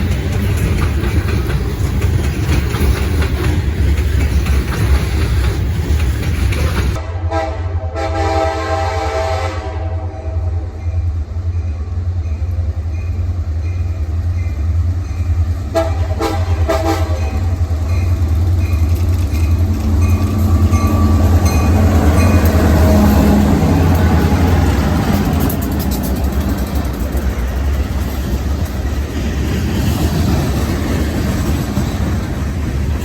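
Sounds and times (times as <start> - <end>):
train rumbling past: 0.0 - 33.0
locomotive horn blasts: 7.0 - 10.7, 15.7 - 17.4.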